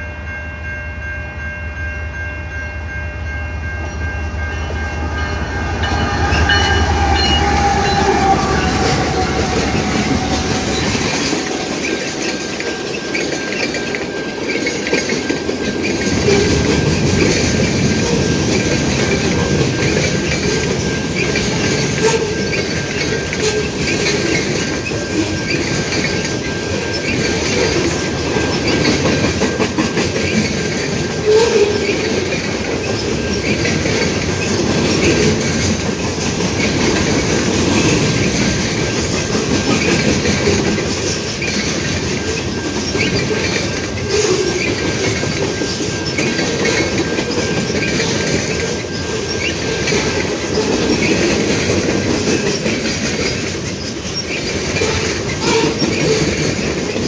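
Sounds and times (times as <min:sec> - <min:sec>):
high wheel squeal: 0:04.6 - 0:29.1, 0:36.6 - 0:56.8
locomotive horn: 0:04.9 - 0:11.1, 0:22.0 - 0:22.5, 0:31.2 - 0:31.9, 0:54.8 - 0:55.8.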